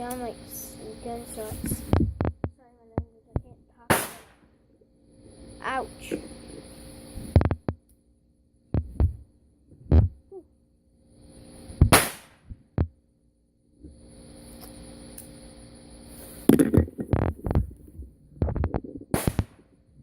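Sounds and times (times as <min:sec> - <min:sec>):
firecracker bangs: 0:03.9 - 0:04.4, 0:11.9 - 0:12.5, 0:19.1 - 0:19.6
firecrackers popping: 0:03.9 - 0:04.4, 0:11.8 - 0:12.4, 0:18.4 - 0:19.6.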